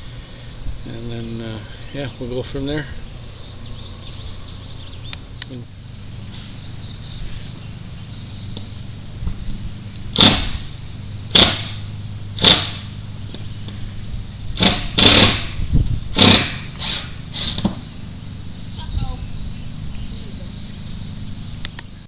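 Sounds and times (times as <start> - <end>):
steady low hum: 0.0 - 22.0
cordless drill running in bursts: 10.1 - 13.0, 14.5 - 17.7.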